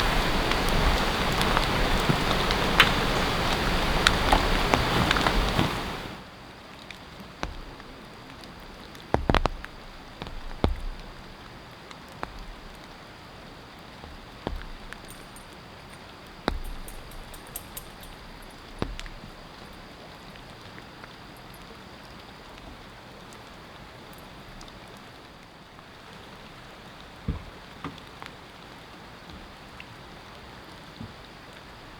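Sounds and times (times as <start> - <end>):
steady rain falling: 0.0 - 31.9
drips tapping a surface: 7.4 - 20.5.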